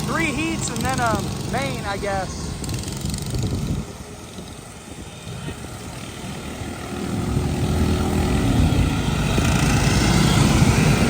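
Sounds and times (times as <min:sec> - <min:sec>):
racing lawn mower engines: 0:00.0 - 0:11.0.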